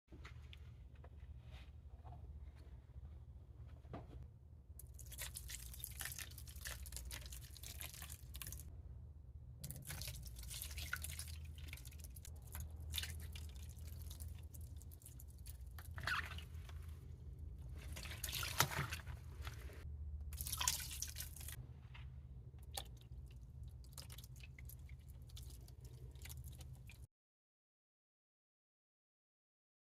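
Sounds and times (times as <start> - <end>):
low steady hum: 0.1 - 27.1
liquid dripping and splashing: 4.8 - 8.7, 9.6 - 16.9, 17.7 - 21.6, 22.6 - 27.1.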